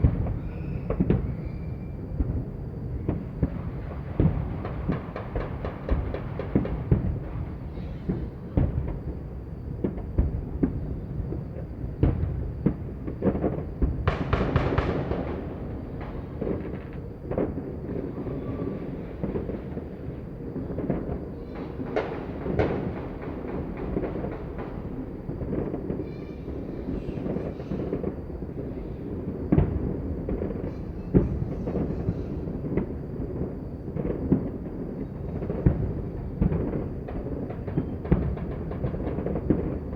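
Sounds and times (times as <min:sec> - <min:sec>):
fireworks booming: 0:00.0 - 0:39.9
firecrackers banging: 0:12.0 - 0:39.9.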